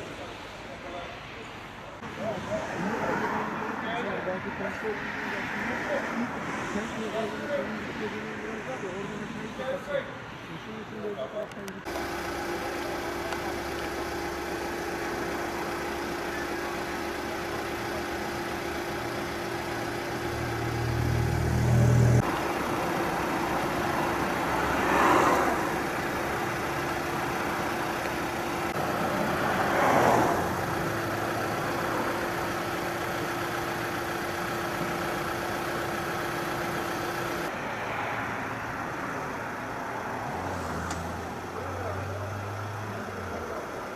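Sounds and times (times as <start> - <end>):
vehicles passing by: 0.0 - 43.9
steady engine hum: 11.7 - 43.9
low engine rumble: 11.8 - 37.6.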